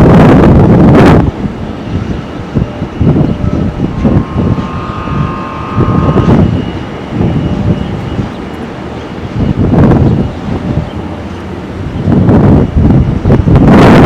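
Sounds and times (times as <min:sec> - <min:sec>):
wind buffeting microphone: 0:00.0 - 0:14.0
jet engines whining: 0:01.5 - 0:09.0.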